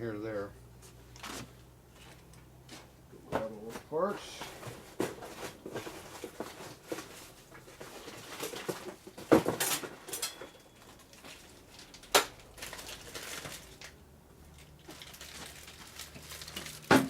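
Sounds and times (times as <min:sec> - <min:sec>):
metal parts clattering: 0:08.0 - 0:13.9.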